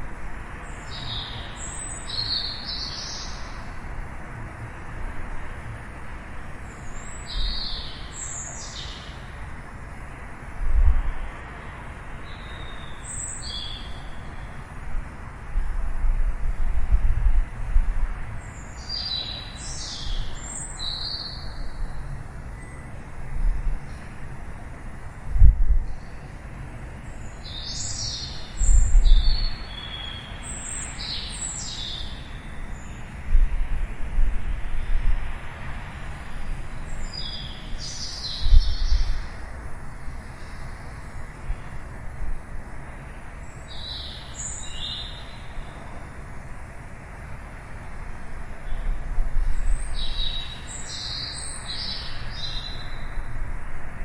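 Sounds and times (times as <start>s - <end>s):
distant city traffic hum: 0.0s - 54.0s
steady low rumble: 21.6s - 26.4s.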